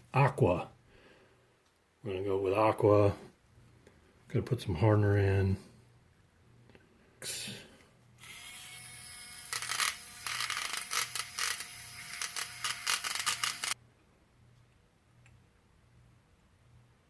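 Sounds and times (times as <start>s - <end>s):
small electric tool whirring: 8.2s - 13.8s.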